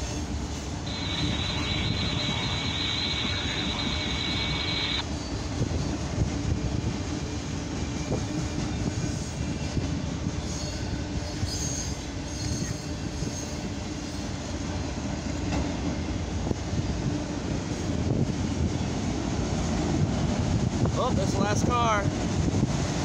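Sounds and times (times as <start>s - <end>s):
train wheels rumbling on rail: 0.0s - 23.0s
high wheel squeal: 0.9s - 5.5s, 10.4s - 14.3s.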